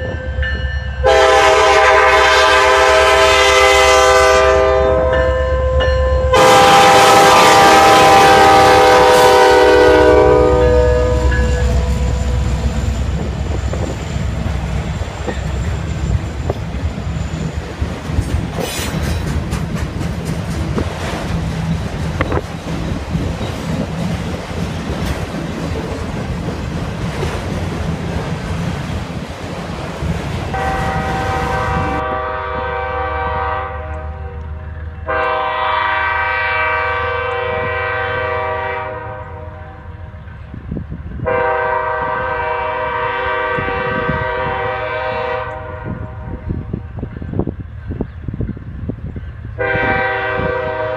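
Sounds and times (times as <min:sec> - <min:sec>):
diesel locomotives running: 0:00.0 - 0:50.9
locomotive air horn blasts: 0:01.0 - 0:12.8, 0:30.5 - 0:40.2, 0:41.2 - 0:46.6, 0:49.6 - 0:50.9
train wheels clattering on rails: 0:11.4 - 0:31.5.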